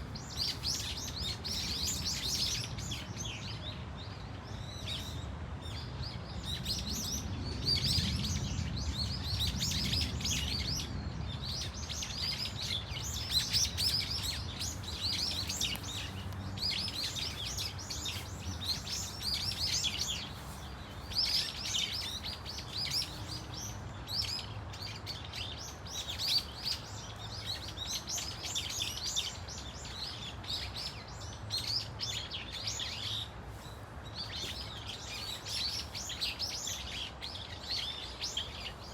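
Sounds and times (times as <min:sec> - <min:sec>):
flock of birds calling shrilly: 0:11.6 - 0:38.9.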